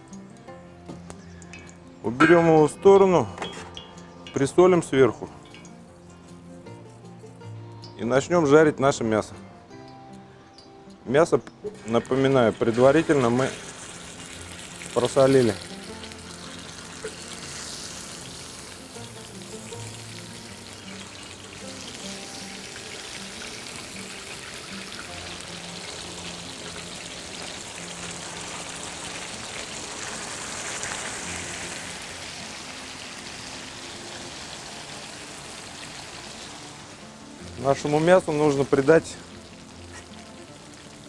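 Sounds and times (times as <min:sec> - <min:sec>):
background music: 0:00.0 - 0:41.0
meat sizzling in hot oil: 0:11.8 - 0:41.0.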